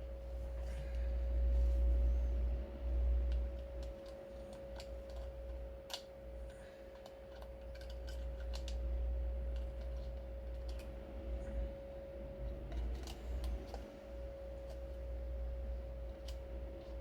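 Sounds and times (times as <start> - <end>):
faint steady hum: 0.0 - 17.0
small clicks and ticks: 3.2 - 11.0.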